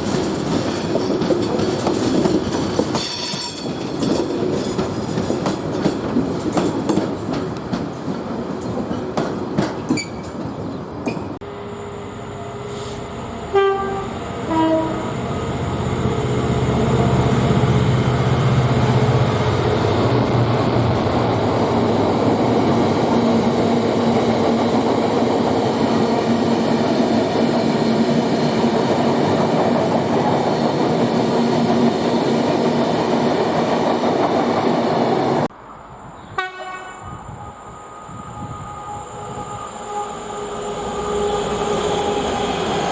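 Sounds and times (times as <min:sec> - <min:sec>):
freight train passing: 0:00.0 - 0:42.9
locomotive two-tone horn: 0:11.4 - 0:15.2, 0:36.4 - 0:42.9.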